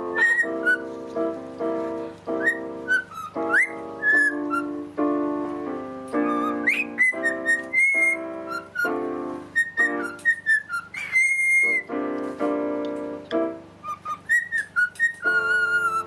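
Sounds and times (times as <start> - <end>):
parrot whistling: 0.0 - 1.0, 2.3 - 4.8, 6.2 - 11.9, 13.8 - 16.0
sustained keyboard chords: 0.0 - 16.0.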